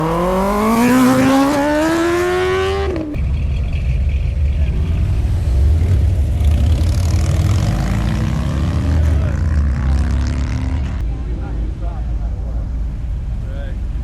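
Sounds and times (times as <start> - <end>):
vehicle engine accelerating: 0.0 - 11.0
low engine rumble: 3.1 - 14.0.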